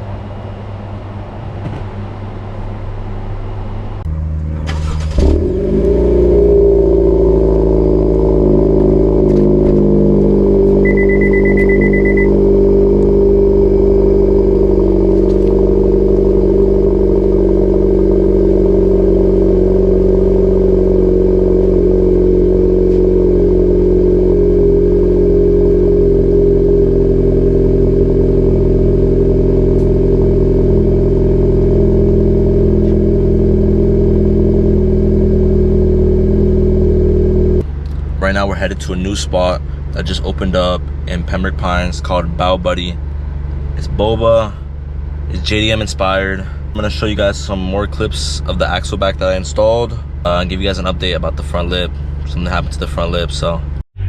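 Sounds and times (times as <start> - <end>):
car engine starting and idling: 0.0 - 54.0
short electronic beep: 10.8 - 12.4.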